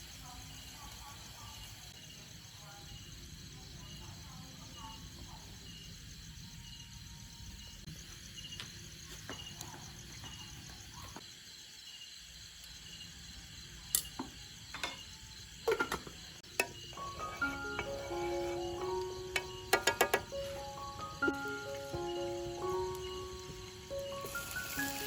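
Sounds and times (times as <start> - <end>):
insects chirping: 0.0 - 25.0
low outdoor background: 0.0 - 25.0.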